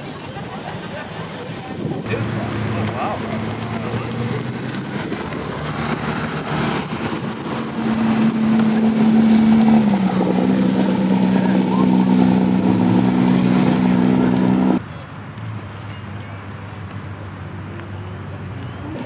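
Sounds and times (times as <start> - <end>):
car engine running: 2.1 - 14.8.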